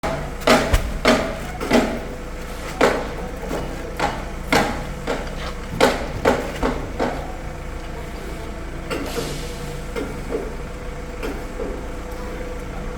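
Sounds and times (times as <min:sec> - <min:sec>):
cement bags thudding: 0:00.0 - 0:08.0
low engine hum: 0:00.0 - 0:12.9.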